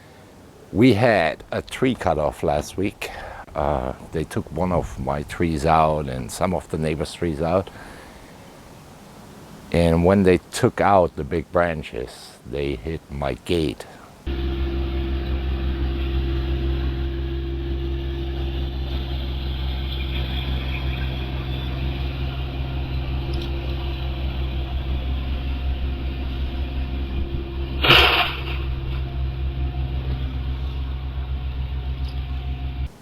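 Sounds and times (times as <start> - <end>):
car engine idling: 14.2 - 33.0
loud burst of noise: 14.3 - 33.0.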